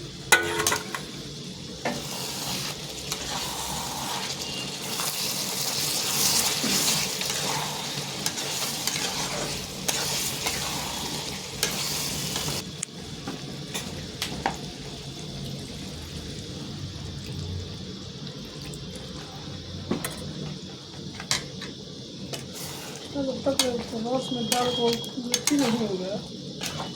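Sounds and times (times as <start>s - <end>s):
food sizzling in a pan: 0.0s - 26.9s
spoon scraping a pan: 0.3s - 1.1s, 1.8s - 12.6s, 22.5s - 26.9s.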